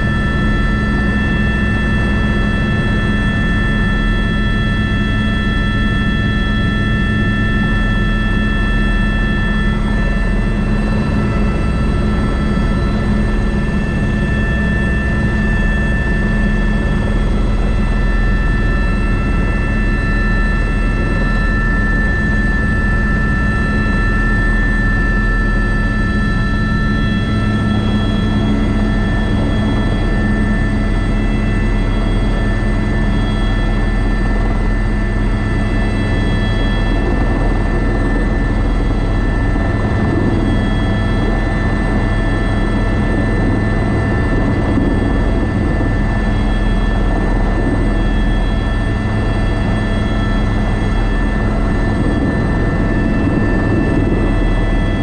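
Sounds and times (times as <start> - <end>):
helicopter drone: 0.0 - 55.0.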